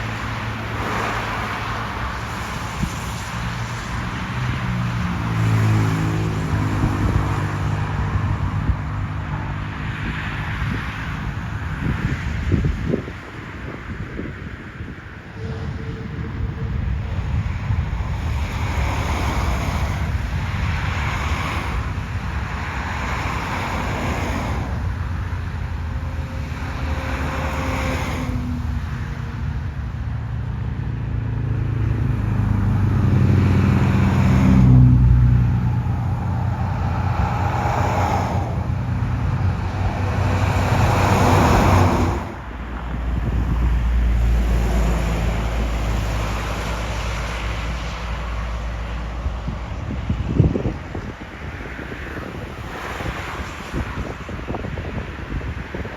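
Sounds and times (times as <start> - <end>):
road traffic passing: 0.0 - 55.9
jet engine rumble: 10.6 - 30.8, 31.4 - 44.0.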